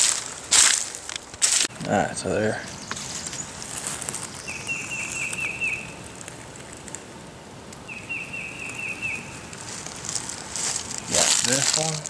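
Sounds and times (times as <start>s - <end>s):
songbird whistling notes: 4.2s - 6.0s, 7.8s - 9.5s.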